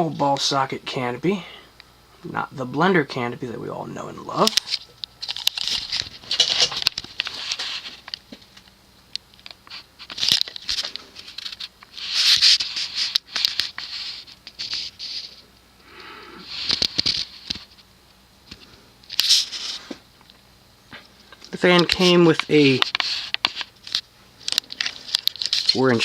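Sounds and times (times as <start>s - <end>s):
rustling and scratching: 4.4s - 8.6s, 9.6s - 15.5s, 16.4s - 17.9s, 18.6s - 20.1s, 20.9s - 26.0s.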